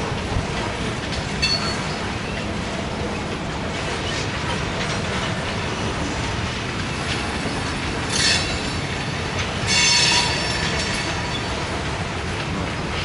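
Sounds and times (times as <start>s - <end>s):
metallic wheel squeals: 9.6s - 11.6s.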